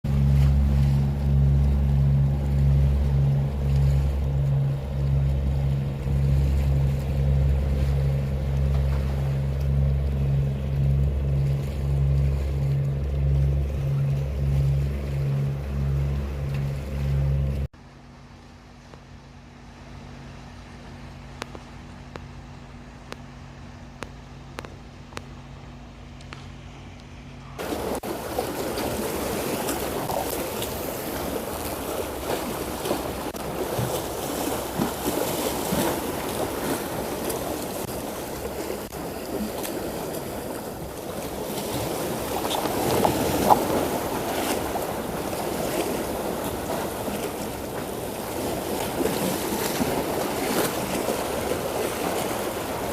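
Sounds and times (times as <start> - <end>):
rush of wind and water: 0.0 - 17.8, 27.5 - 52.9
steady low hum: 0.0 - 52.9.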